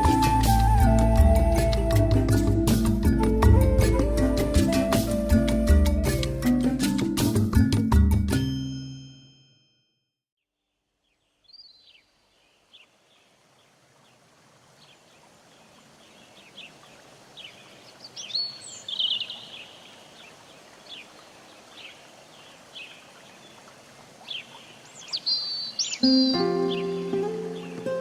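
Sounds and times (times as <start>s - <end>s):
birds chirping: 11.0s - 28.0s
steady background hiss: 11.0s - 28.0s.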